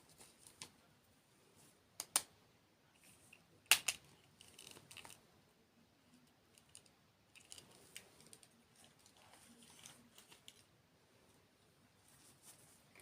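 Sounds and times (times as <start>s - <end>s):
small crackles and ticks: 6.2s - 10.7s.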